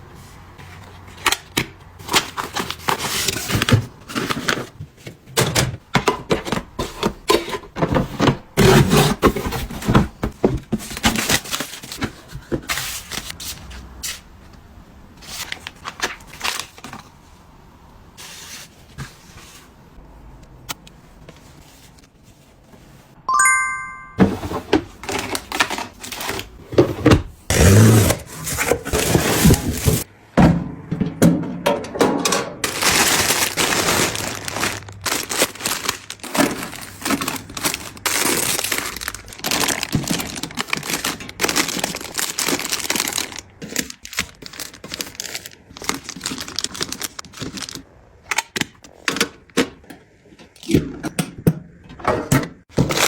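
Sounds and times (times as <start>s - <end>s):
packaging rustling and crinkling: 0.6s - 13.6s, 15.2s - 17.3s, 24.5s - 30.1s, 32.6s - 47.9s, 52.7s - 53.0s
short ringing tone: 23.3s - 24.2s.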